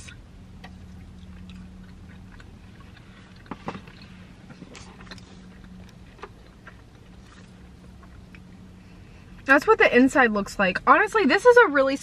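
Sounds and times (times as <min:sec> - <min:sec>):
car interior hum: 0:00.0 - 0:12.0
chewing crispy food: 0:00.1 - 0:08.6.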